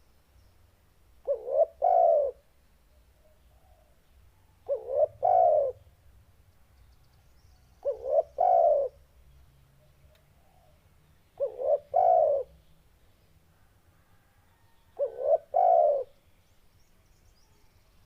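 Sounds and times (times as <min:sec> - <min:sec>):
dove cooing: 0:01.2 - 0:02.4, 0:04.6 - 0:05.9, 0:07.8 - 0:09.0, 0:11.4 - 0:12.6, 0:14.5 - 0:16.2.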